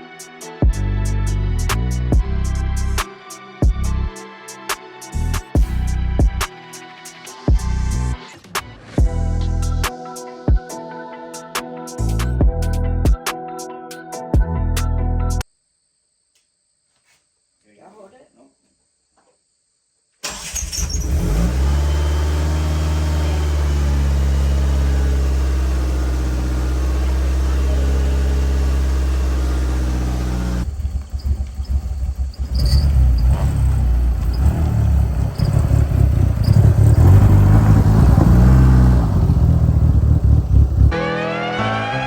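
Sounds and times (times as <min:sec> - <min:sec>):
car engine running: 0:21.0 - 0:40.9.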